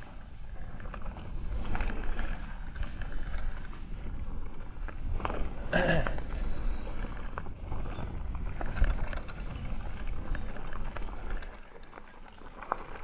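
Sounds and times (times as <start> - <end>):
wind buffeting microphone: 0.0 - 13.0
bike rattling and knocking: 4.3 - 13.0.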